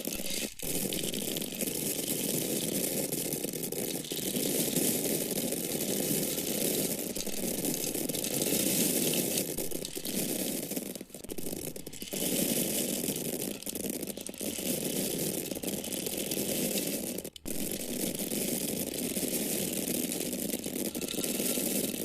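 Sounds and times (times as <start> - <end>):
corn kernels pouring: 0.0 - 22.0.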